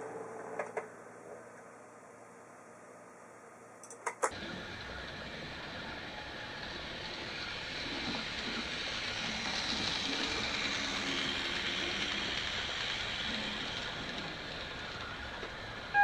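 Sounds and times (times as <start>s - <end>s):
model train motor hum: 4.3s - 16.0s.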